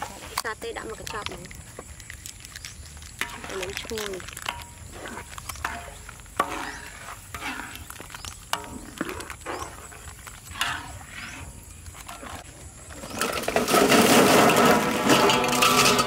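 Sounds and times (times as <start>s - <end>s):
noodles sizzling in hot oil: 0.5s - 9.4s
metal ladle scraping a wok: 3.2s - 16.0s.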